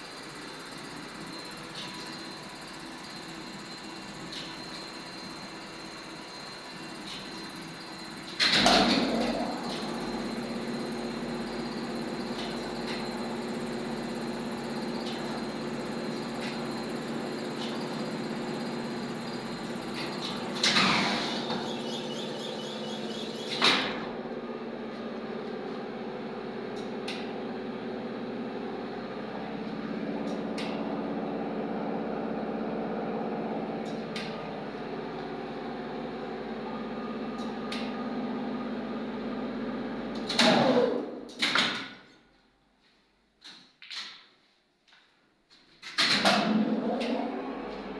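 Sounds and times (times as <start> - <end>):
elevator motor humming: 0.0 - 40.7.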